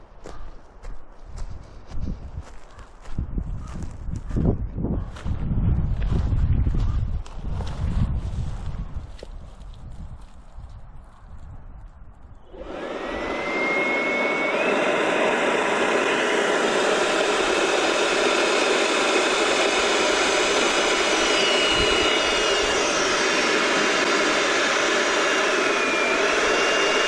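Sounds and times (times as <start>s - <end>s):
electric balloon pump running: 12.4s - 27.0s
thin whistle rising in pitch: 12.5s - 16.3s, 20.7s - 27.0s.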